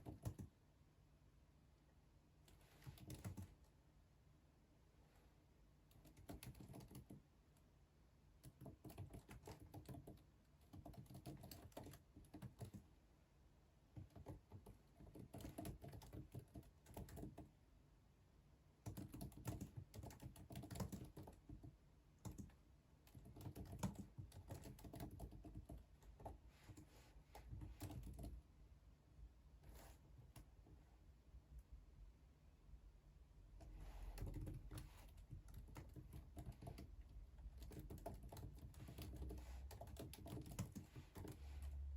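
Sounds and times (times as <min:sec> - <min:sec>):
computer keyboard typing: 0:00.0 - 0:00.6, 0:02.5 - 0:03.6, 0:05.9 - 0:07.2, 0:08.4 - 0:12.9, 0:13.9 - 0:17.5, 0:18.8 - 0:28.4, 0:34.1 - 0:41.4.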